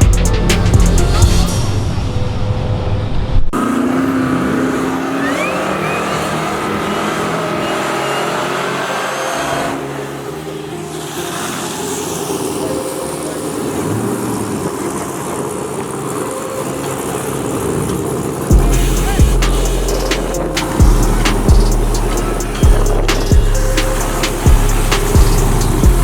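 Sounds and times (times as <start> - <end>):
truck engines revving: 3.4 - 26.0.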